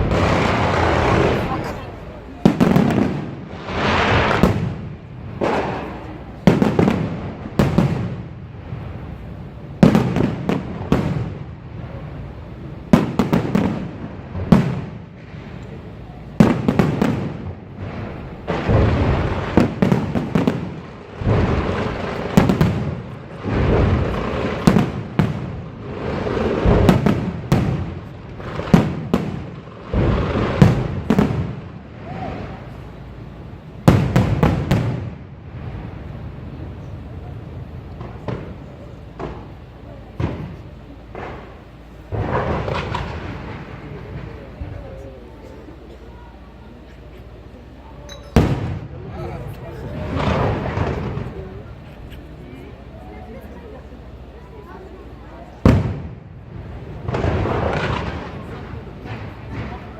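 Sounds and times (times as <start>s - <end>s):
firework crackling: 0.0s - 59.9s
firework shells bursting: 37.9s - 44.6s.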